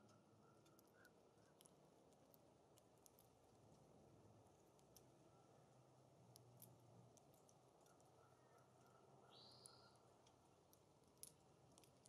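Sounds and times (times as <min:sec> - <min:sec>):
faint high bird call: 0:08.2 - 0:10.0.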